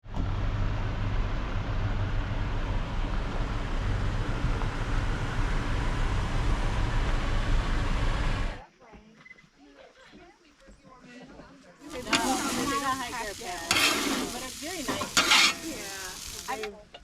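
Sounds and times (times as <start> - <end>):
vehicle engine and road rumble: 0.0 - 8.6.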